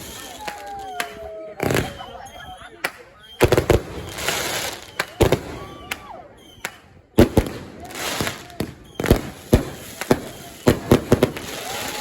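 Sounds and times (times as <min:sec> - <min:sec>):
fireworks bangs: 0:00.0 - 0:12.0
fireworks crackling hiss: 0:03.4 - 0:05.4, 0:07.2 - 0:12.0.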